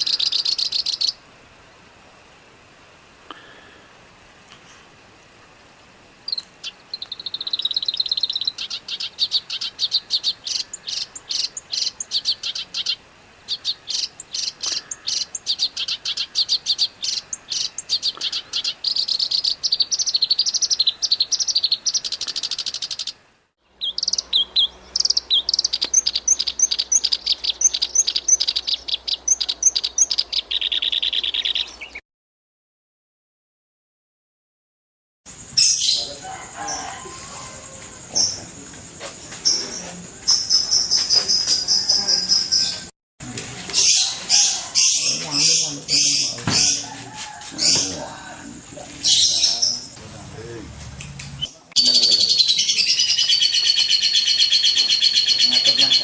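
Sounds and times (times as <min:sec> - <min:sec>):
songbird trilling: 0:00.0 - 0:01.2, 0:06.3 - 0:32.0, 0:39.4 - 0:42.9, 0:43.7 - 0:50.0, 0:51.4 - 0:56.0.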